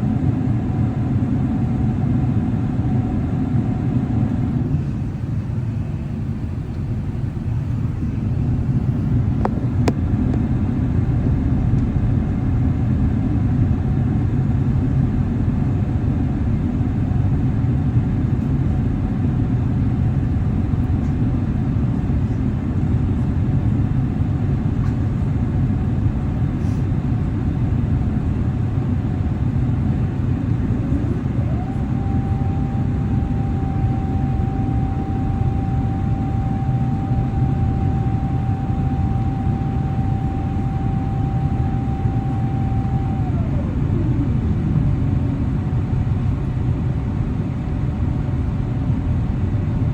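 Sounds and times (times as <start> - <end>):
airliner cabin rumble: 0.0 - 49.9
faint steady tone: 30.6 - 44.4.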